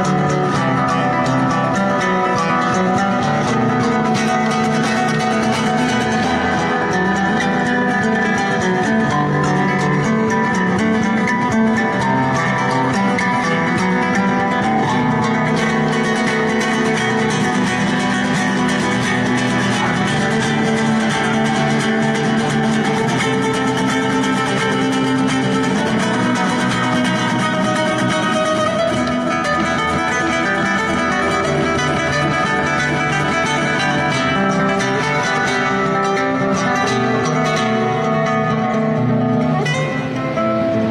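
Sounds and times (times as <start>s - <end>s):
flamenco acoustic guitar: 0.0s - 40.9s.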